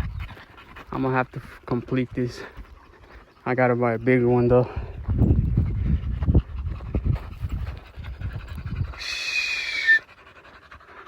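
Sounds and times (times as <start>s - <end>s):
dogs panting: 0.0s - 11.0s
high whistling sound: 9.0s - 10.1s.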